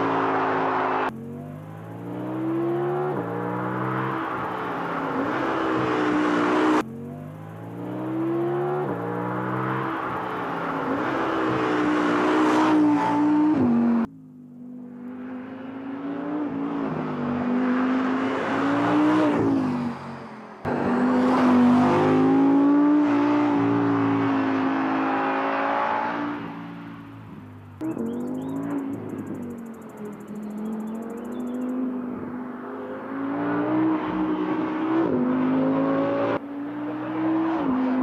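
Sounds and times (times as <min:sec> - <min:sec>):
sports car engine revving: 0:20.6 - 0:38.0.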